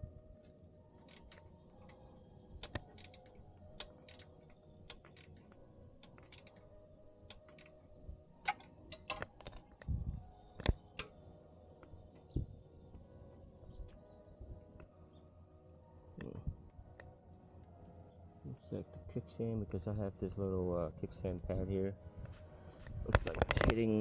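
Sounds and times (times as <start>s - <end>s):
clicks of tools and small parts: 1.0s - 2.0s, 2.6s - 6.7s, 7.3s - 7.8s, 8.4s - 9.9s, 10.5s - 11.2s.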